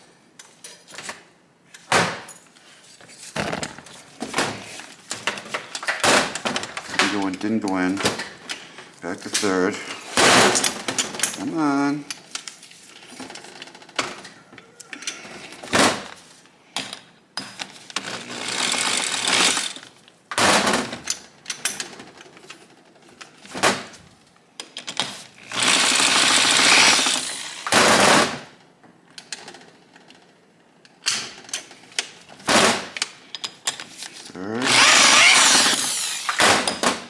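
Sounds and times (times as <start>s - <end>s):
gears rattling rapidly: 25.6s - 28.0s, 34.6s - 36.5s.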